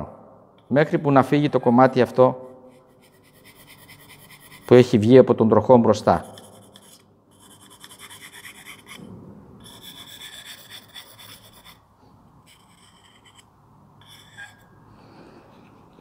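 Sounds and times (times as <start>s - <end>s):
chisel scraping on oilstone: 6.3s - 9.0s, 9.7s - 11.8s, 12.5s - 14.7s.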